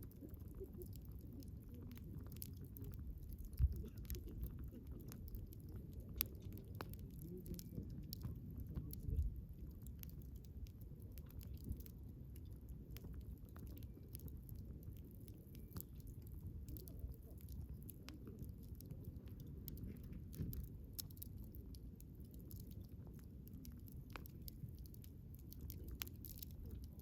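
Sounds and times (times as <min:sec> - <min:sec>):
low rumble of burning: 0:00.0 - 0:27.0
wood fire crackling: 0:00.0 - 0:27.0.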